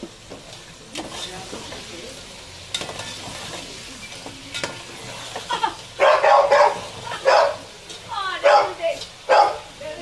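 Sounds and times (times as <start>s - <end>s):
chicken sizzling in hot oil: 0.0s - 10.0s
metal spoon clinking on pot: 2.7s - 3.2s, 4.1s - 4.8s
dog barking: 6.0s - 7.6s, 8.4s - 9.7s.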